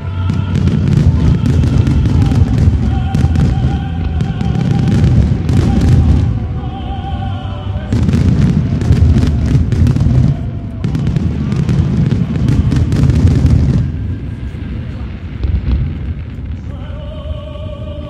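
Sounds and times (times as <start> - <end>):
fireworks booming: 0.0 - 6.7, 7.8 - 18.0
fireworks crackling: 0.0 - 6.9, 7.7 - 18.0.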